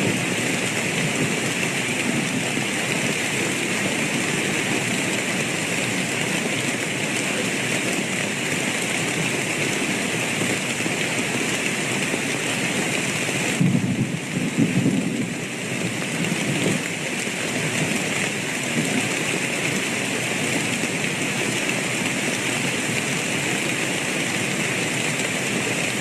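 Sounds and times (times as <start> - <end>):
heavy rainfall: 0.0 - 26.0.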